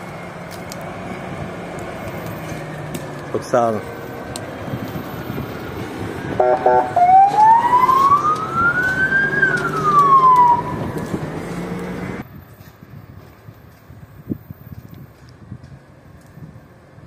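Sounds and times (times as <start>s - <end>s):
emergency vehicle siren: 0.0s - 12.2s.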